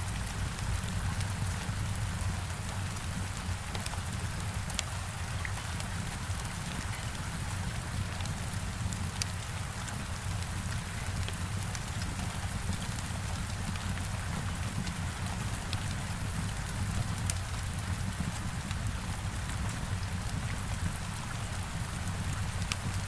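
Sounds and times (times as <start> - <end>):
heavy rain on a window: 0.0 - 23.0.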